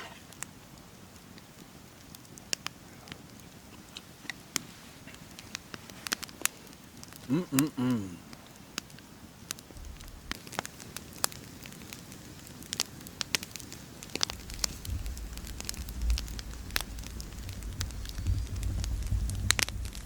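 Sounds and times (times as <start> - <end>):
campfire crackling and popping: 0.0 - 20.0
low rumble: 9.7 - 10.6, 14.3 - 20.0.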